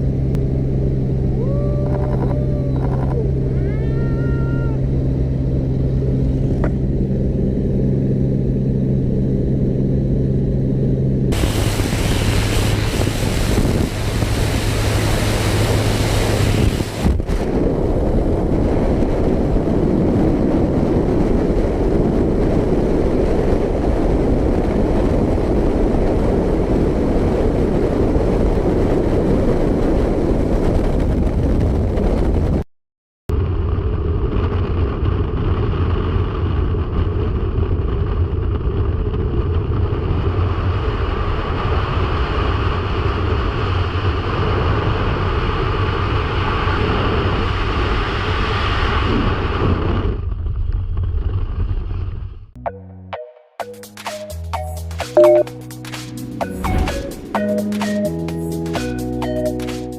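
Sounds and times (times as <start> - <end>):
low droning hum: 0.0 - 30.6
aircraft engine drone: 0.0 - 31.9, 55.0 - 59.9
wind rushing on microphone: 0.0 - 32.6, 33.3 - 52.5.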